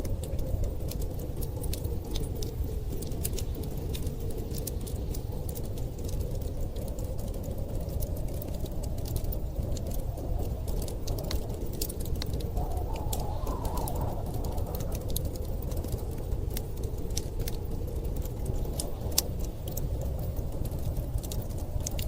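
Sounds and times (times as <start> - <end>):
wood fire crackling and popping: 0.0 - 22.0
storm wind rushing: 7.0 - 22.0.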